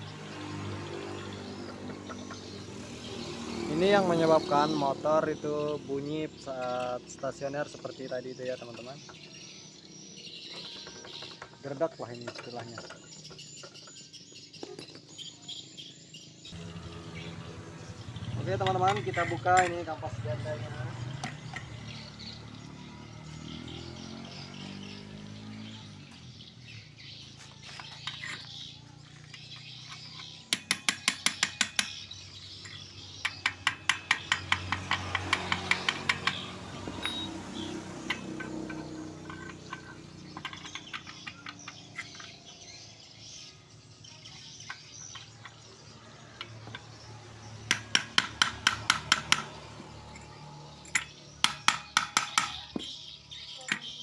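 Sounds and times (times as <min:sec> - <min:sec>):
birds chirping: 0:00.0 - 0:54.0
metal hand tools clinking: 0:16.6 - 0:22.2, 0:27.6 - 0:42.8, 0:47.7 - 0:54.0.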